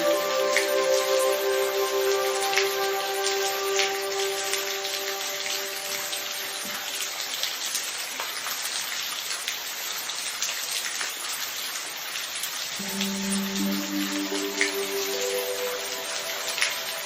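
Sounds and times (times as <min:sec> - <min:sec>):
held musical tones: 0:00.0 - 0:06.9, 0:12.8 - 0:17.0
rain hiss with drop ticks: 0:00.0 - 0:17.0.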